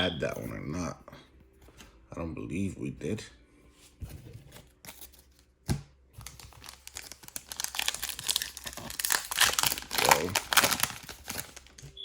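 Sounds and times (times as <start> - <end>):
foil wrapper crinkling and tearing: 6.2 - 12.0.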